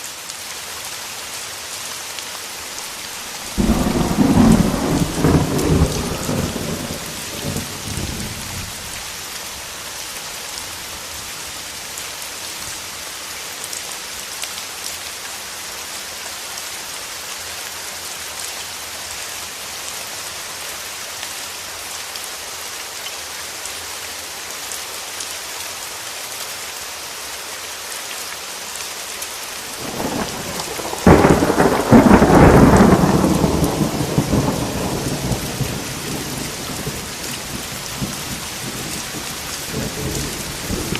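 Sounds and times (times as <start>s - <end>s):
rain falling: 0.0s - 40.9s
thunder rumbling and cracking: 3.4s - 8.9s, 29.8s - 40.9s.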